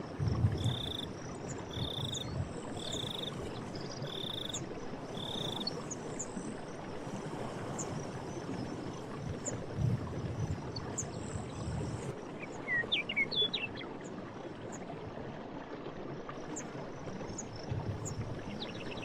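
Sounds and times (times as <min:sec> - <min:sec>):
stream running: 0:00.0 - 0:19.0.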